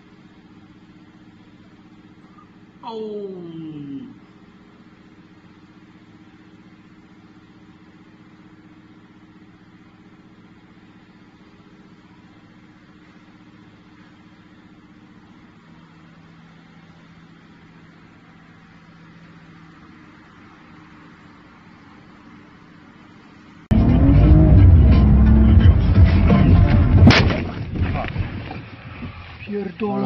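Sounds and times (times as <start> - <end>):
car engine hum: 0.0 - 30.0
road noise: 0.0 - 30.0
low steady tone: 23.7 - 27.6.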